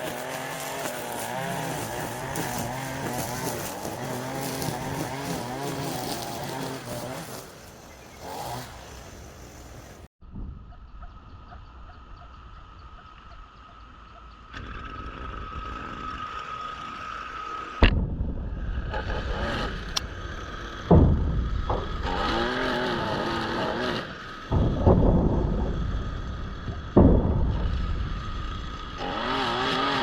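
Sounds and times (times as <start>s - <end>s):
small gasoline yard equipment whining: 0.0s - 10.1s, 12.8s - 30.0s.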